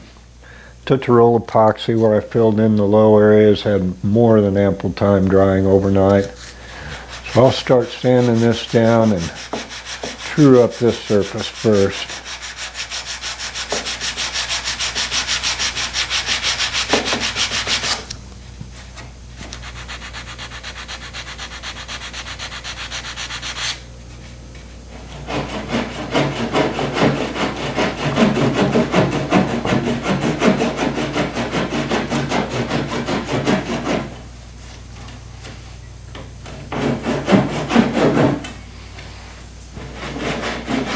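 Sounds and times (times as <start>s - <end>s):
sandpaper rubbing back and forth: 5.4s - 18.1s, 18.7s - 23.8s, 24.9s - 34.8s, 36.5s - 40.9s.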